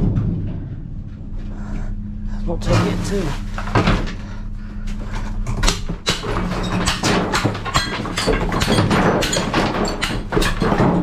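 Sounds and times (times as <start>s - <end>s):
steady low hum: 0.0s - 11.0s
scrap metal clanking: 2.6s - 4.2s, 6.1s - 11.0s.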